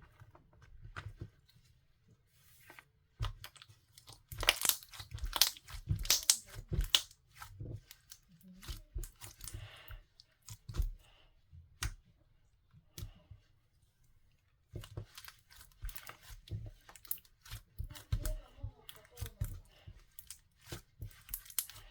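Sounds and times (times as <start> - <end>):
slime crackling pops: 4.3 - 7.1.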